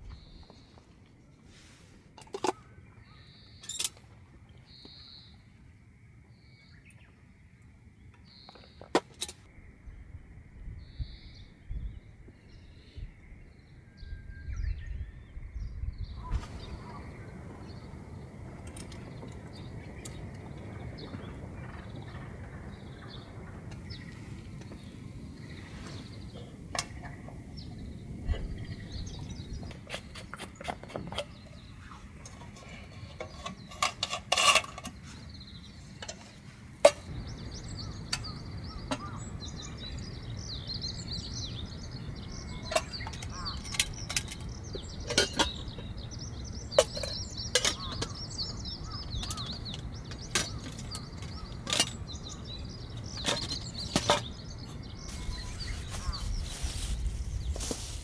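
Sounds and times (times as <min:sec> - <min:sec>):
bird chirping: 0:12.5 - 0:58.0
steady hiss with crackles: 0:16.3 - 0:30.6.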